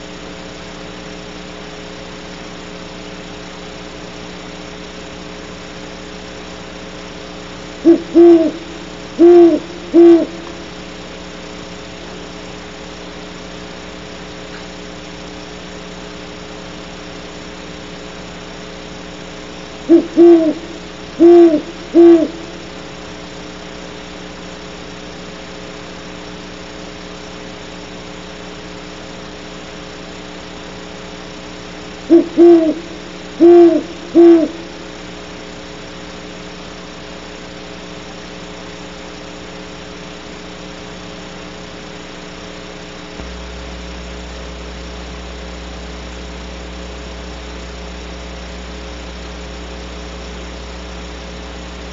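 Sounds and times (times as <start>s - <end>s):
electrical hum: 0.0s - 51.9s
owl hooting: 7.8s - 10.8s, 19.8s - 22.8s, 32.0s - 35.1s.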